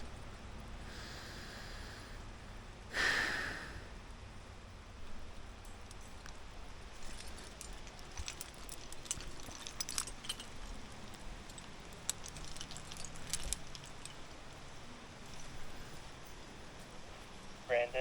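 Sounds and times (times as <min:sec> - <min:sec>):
metal climbing gear clinking: 0:05.6 - 0:16.4.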